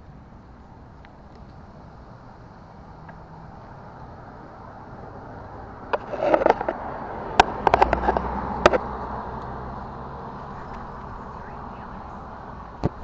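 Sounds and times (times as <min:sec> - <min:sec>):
sharp clicks and rattles: 0:05.9 - 0:09.5.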